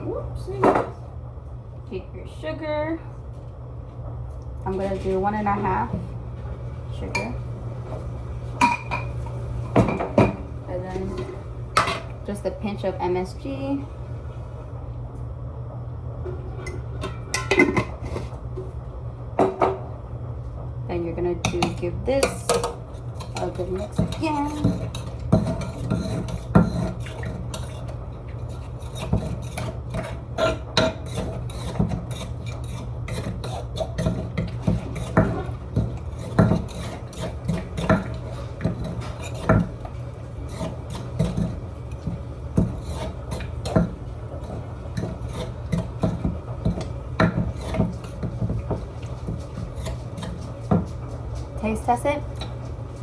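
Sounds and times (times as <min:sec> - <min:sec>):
steady low hum: 0:00.0 - 0:53.0
utensil scraping in mortar: 0:22.8 - 0:51.0.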